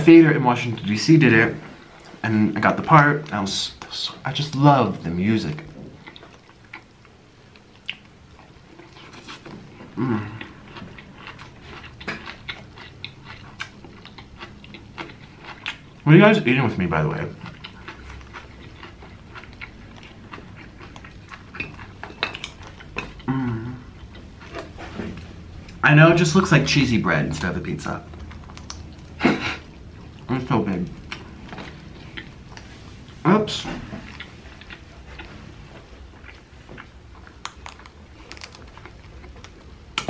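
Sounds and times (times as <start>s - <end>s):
chewing clicks and smacks: 5.5s - 9.6s, 10.4s - 16.0s, 17.4s - 23.3s, 28.0s - 32.7s, 34.0s - 40.0s
wet mouth clicks and smacks: 28.2s - 29.2s.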